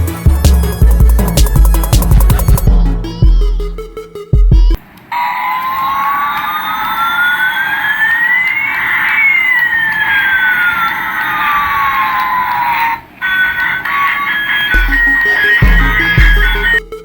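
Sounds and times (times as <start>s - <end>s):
siren wailing: 5.1s - 17.0s.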